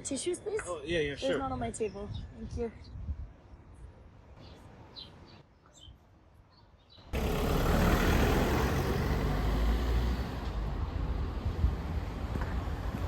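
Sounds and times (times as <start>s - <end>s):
outdoor noise with deep rumble: 6.9s - 13.0s.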